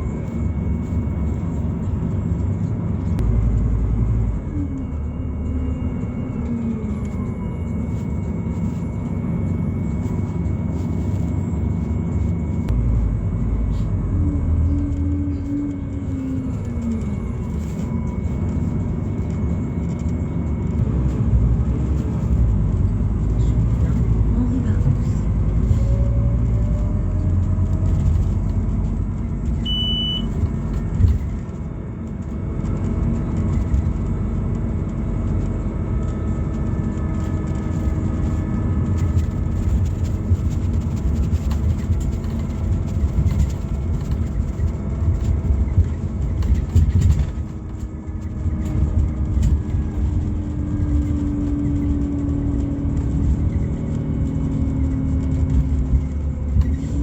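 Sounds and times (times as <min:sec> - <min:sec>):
bus engine low rumble: 0:00.0 - 0:57.0
short high beep: 0:29.6 - 0:30.3.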